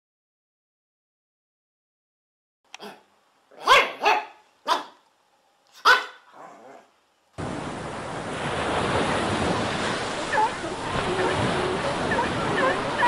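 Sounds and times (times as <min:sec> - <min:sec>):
dog barking: 0:02.8 - 0:05.0, 0:05.8 - 0:06.8
surf washing: 0:07.4 - 0:13.0.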